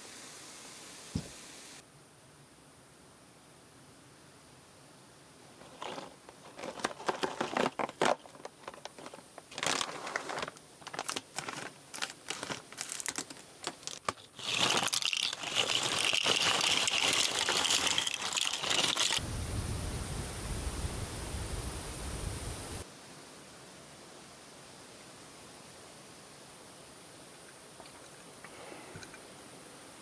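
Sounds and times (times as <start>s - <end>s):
loud steady hiss: 0.0s - 5.6s, 13.4s - 30.0s
plastic crinkling and crackling: 5.6s - 19.2s.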